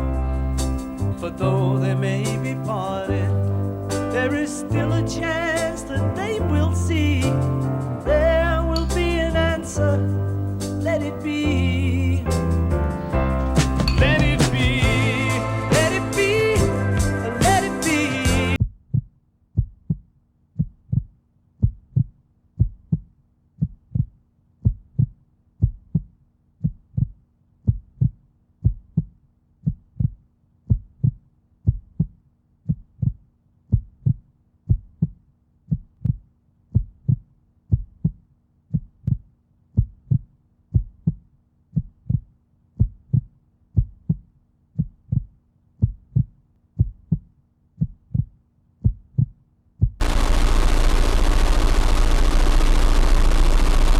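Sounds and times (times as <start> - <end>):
faint low hum: 50.0 - 53.9.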